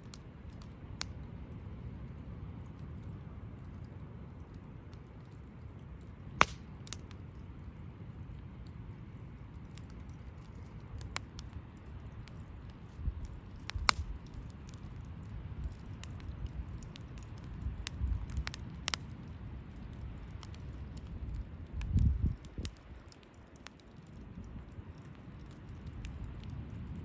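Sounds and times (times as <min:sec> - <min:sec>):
campfire crackling and popping: 0:00.0 - 0:27.0.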